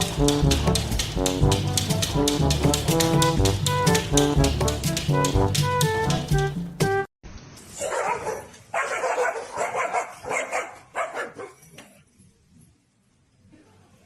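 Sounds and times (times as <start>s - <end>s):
dog barking: 7.8s - 11.6s.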